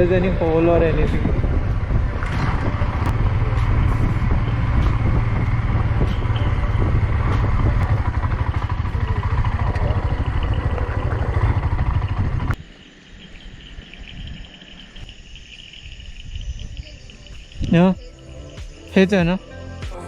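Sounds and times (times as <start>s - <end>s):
motorcycle engine rumble: 0.0s - 12.7s
road and wind noise: 0.0s - 19.8s
insects trilling: 3.3s - 20.0s.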